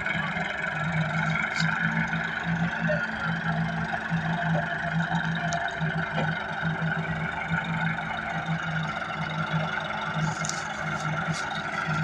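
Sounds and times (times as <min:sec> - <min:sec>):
tractor engine throbbing: 0:00.0 - 0:12.0.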